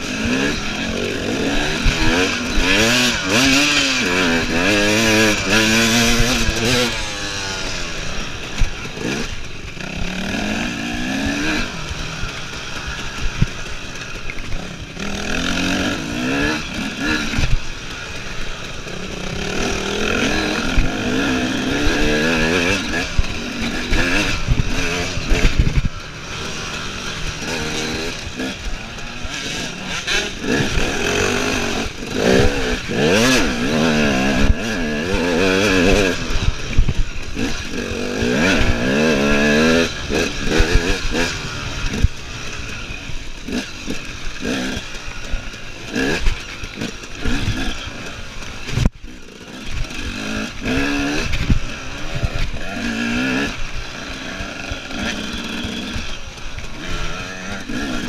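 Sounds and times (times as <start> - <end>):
motorcycle engine revving: 0.0 - 58.0
motorcycle thumping over rough ground: 20.6 - 45.0.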